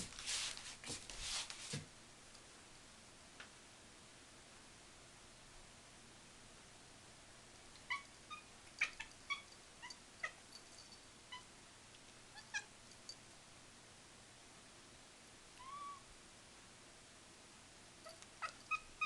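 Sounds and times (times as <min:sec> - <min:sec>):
kitten chirping cries: 0:07.9 - 0:10.4, 0:12.3 - 0:12.7, 0:15.6 - 0:16.1, 0:18.0 - 0:19.0.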